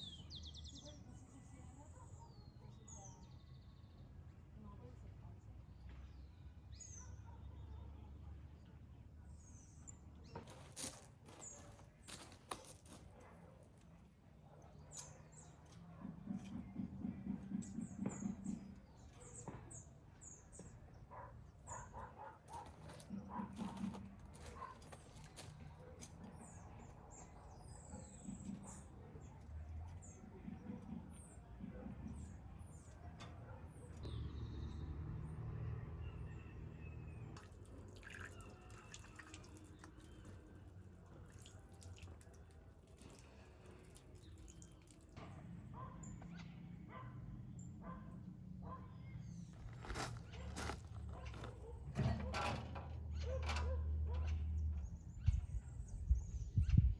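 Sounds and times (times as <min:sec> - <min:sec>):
small birds chirping: 0:00.0 - 0:13.9
water dripping: 0:37.4 - 0:45.2.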